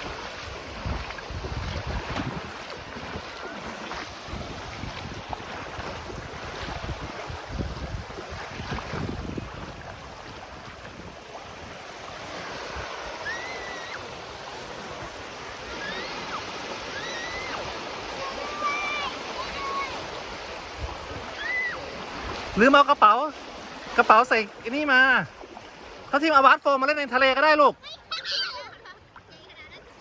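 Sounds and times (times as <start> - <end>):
wind buffeting microphone: 0.0 - 16.3, 17.4 - 22.6
sea waves washing on shore: 0.0 - 30.0
faint high calls: 13.1 - 14.1, 15.7 - 17.6, 21.3 - 21.9.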